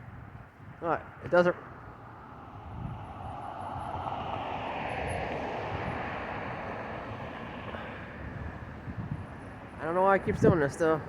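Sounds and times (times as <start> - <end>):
vehicle passing by: 2.1 - 10.0.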